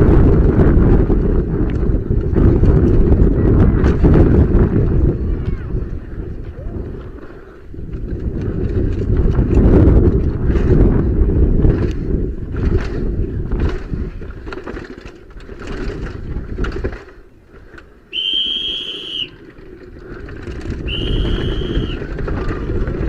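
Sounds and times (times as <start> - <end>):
wind rushing over microphone: 0.0 - 23.0
high whistle-like tone: 18.1 - 19.4, 20.9 - 22.0.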